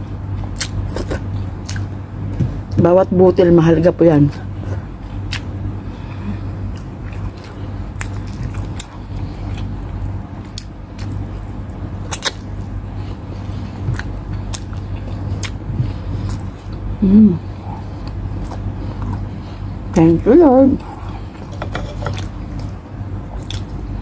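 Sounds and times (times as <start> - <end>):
steady low hum: 0.0 - 24.0
chewing with sharp clicks: 5.3 - 5.5, 12.1 - 12.5, 13.8 - 16.8.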